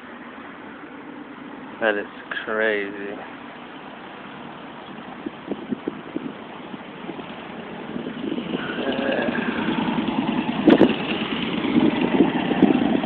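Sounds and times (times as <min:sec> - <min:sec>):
vehicle engine running: 0:01.4 - 0:13.0.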